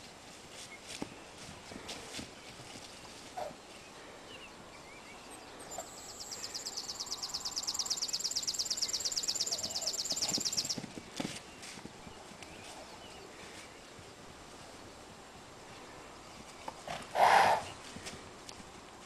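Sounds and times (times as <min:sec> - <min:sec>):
bird trilling: 0:05.7 - 0:10.8.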